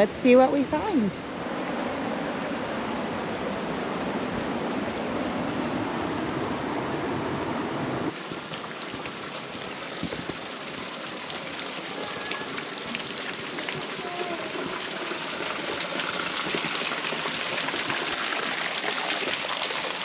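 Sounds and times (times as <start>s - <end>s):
water rushing: 0.0s - 20.0s
water dripping: 8.1s - 20.0s.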